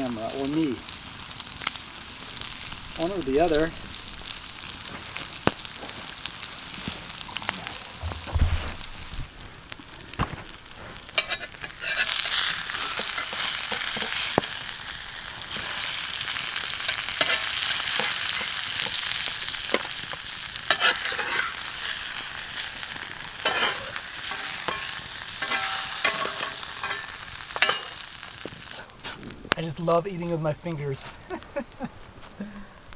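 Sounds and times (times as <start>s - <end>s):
crackles and pops: 0.0s - 32.9s
fish sizzling over campfire: 0.0s - 32.9s
dull knock: 8.0s - 8.8s.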